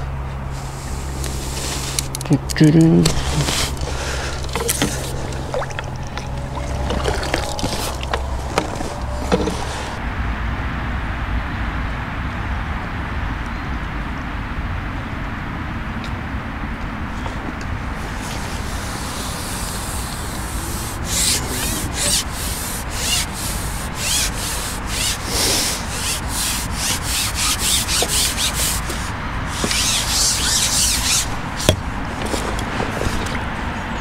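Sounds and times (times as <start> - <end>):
rubbing and scraping: 0.6 - 10.0, 17.2 - 33.6.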